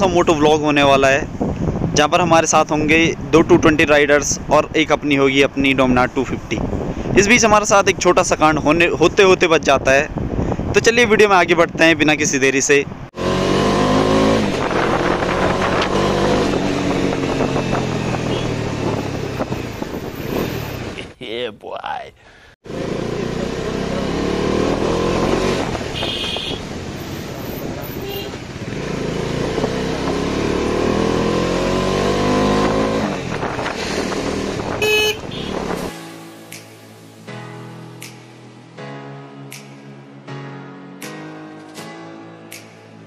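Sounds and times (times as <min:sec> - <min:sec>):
wind noise: 0:00.0 - 0:12.2, 0:13.9 - 0:21.2, 0:32.5 - 0:35.9
motorcycle engine accelerating: 0:13.2 - 0:21.0, 0:22.6 - 0:35.9
horn beep: 0:18.2 - 0:18.6, 0:34.8 - 0:35.7
music: 0:35.7 - 0:43.0.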